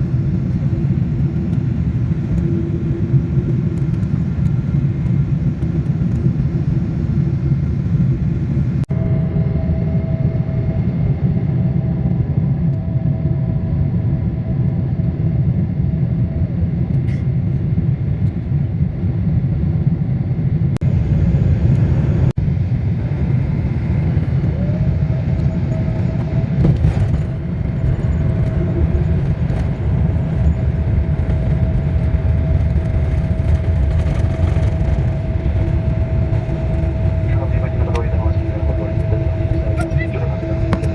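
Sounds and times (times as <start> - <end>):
airliner cabin rumble: 0.0 - 40.9
faint steady whine: 20.9 - 40.9.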